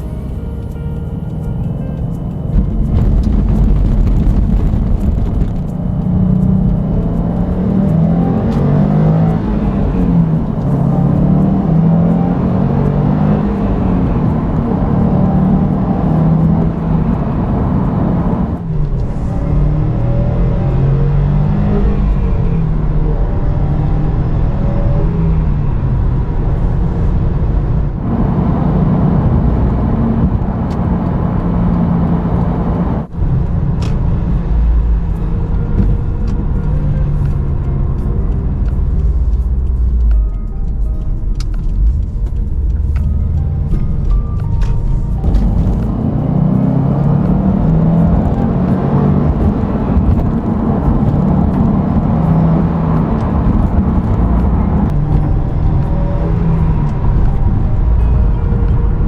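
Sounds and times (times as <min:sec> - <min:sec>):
car engine accelerating: 0:00.0 - 0:40.3, 0:41.6 - 0:59.0.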